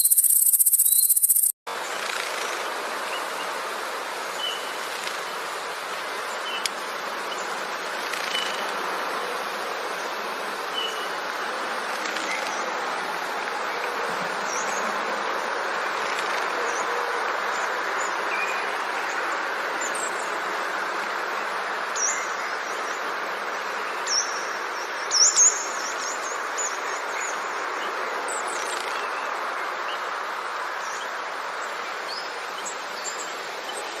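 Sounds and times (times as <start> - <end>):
bird chirping: 0.0 - 1.6
steady background hiss: 1.7 - 34.0.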